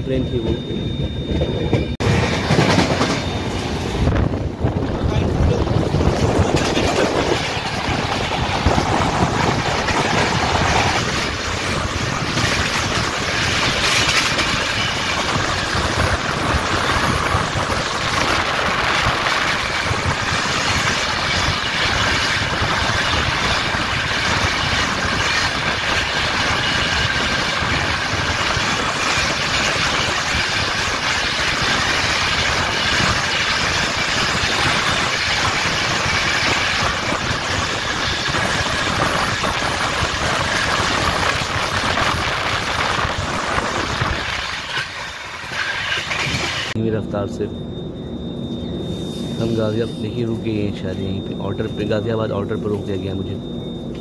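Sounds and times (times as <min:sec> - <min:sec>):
train wheels rumbling on rails: 0:00.0 - 0:54.0
wind on microphone: 0:03.8 - 0:31.9.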